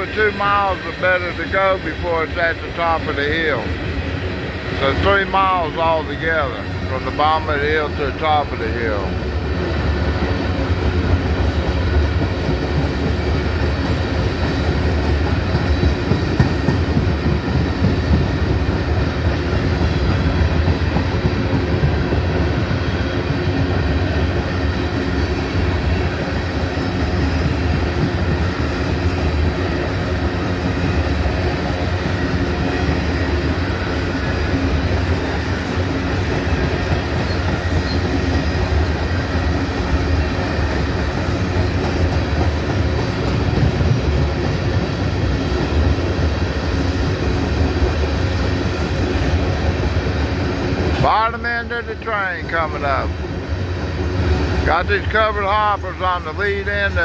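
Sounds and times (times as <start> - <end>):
freight train rolling past: 0.0 - 57.0
clatter from train trucks: 10.8 - 53.1.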